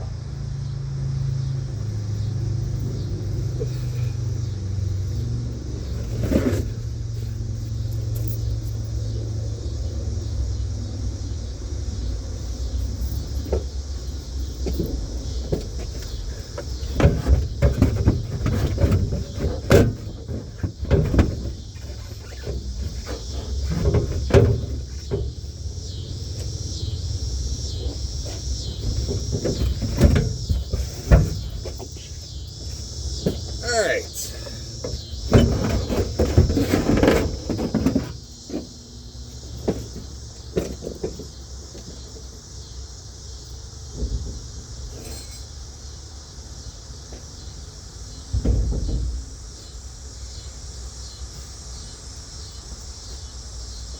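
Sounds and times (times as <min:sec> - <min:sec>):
knocks and scraping in car cabin: 0:01.7 - 0:09.4, 0:12.4 - 0:45.8, 0:46.9 - 0:50.4.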